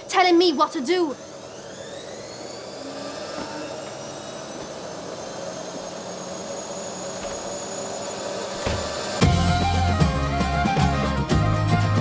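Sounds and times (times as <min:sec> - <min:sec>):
theme music: 0:09.2 - 0:12.0.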